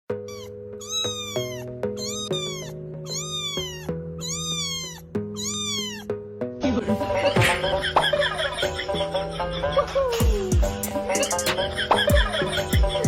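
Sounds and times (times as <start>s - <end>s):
cat meowing: 0.3s - 6.1s
music of sustained chords: 6.1s - 13.0s.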